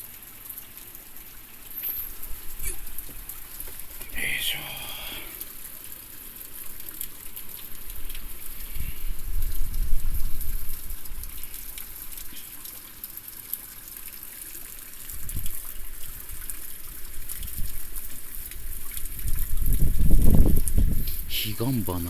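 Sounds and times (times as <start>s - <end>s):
hiss of heavy rain: 0.0s - 22.0s
wind buffeting microphone: 8.5s - 11.3s, 18.7s - 21.4s.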